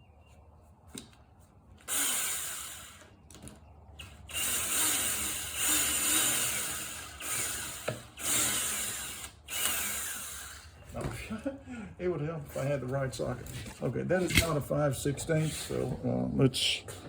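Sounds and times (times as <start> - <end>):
power drill driving a screw: 1.8 - 3.2, 4.0 - 10.8.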